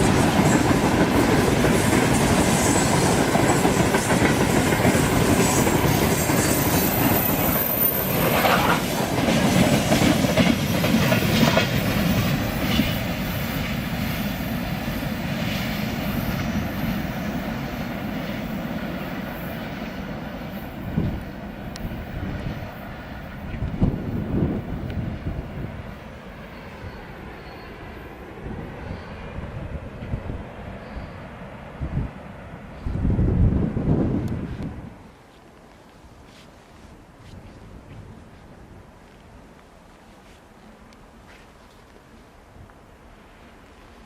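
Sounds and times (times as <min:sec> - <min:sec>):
train wheels clicking over rail joints: 0:00.0 - 0:22.0.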